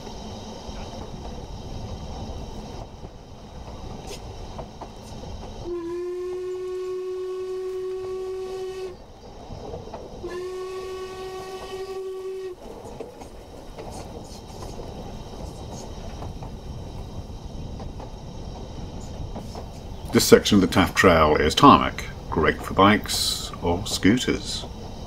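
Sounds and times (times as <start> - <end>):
train rumbling on track: 0.0 - 25.0
train whistle blowing: 5.6 - 9.0, 10.2 - 12.6.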